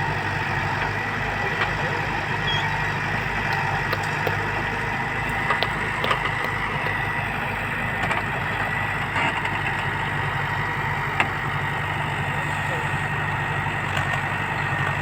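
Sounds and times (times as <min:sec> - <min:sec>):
heavy machine engine running: 0:00.0 - 0:15.0
light clicks and knocks: 0:03.3 - 0:07.2.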